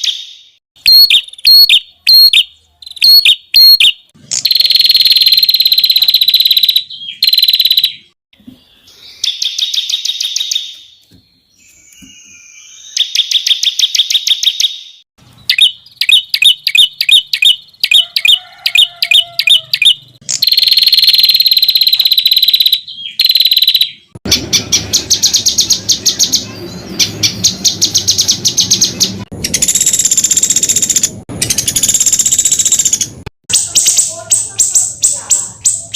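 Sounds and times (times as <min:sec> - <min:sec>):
songbird trills and whistles: 0:08.7 - 0:24.1.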